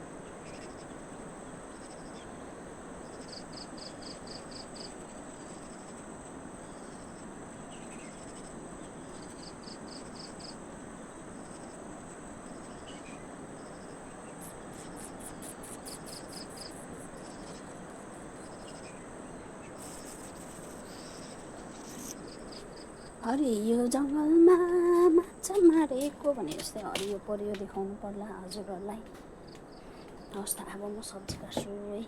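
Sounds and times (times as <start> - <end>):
insects chirping: 0.0 - 32.0
fast pulsing trills: 14.4 - 26.9.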